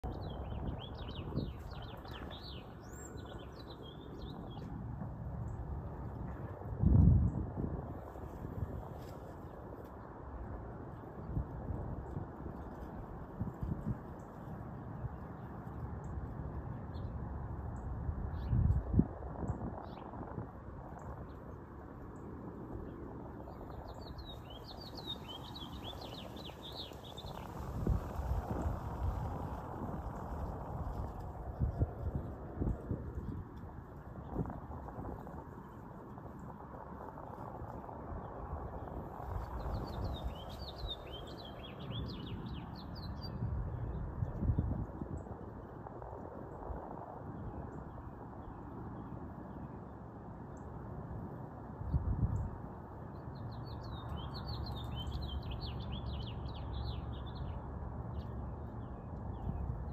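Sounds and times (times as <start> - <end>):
small bird singing: 0.0 - 4.7, 23.4 - 28.7, 39.4 - 44.0, 53.2 - 59.9
steady low rumble: 0.0 - 59.9.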